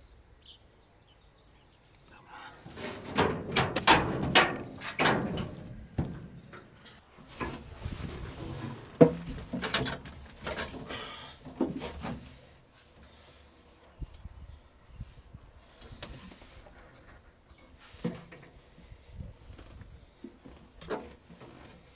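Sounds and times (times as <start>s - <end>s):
scattered knocks and clicks: 2.8s - 6.7s.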